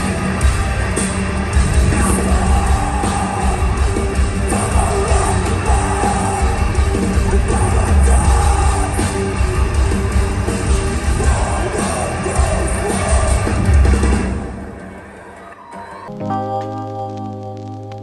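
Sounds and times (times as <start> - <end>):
live rock band: 0.0 - 18.0
singer yelling: 1.8 - 10.0.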